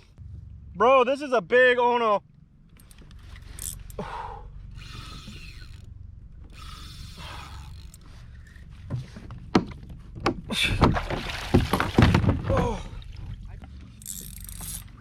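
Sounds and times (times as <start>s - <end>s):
low rumble: 0.0s - 10.6s
fishing reel cranking: 2.8s - 8.6s, 14.0s - 15.0s.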